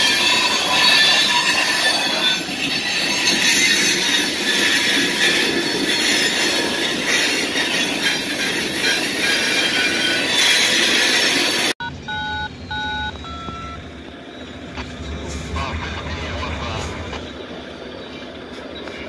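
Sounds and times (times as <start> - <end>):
railroad crossing bell: 0.0 - 10.8
freight train wheels rumbling: 0.0 - 19.0.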